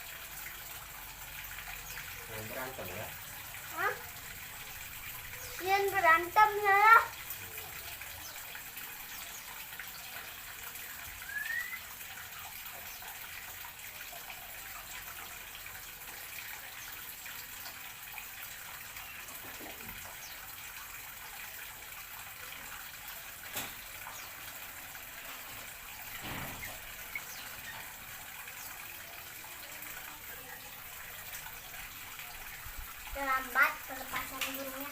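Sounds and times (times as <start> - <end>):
short rising whistle: 11.2 - 11.8.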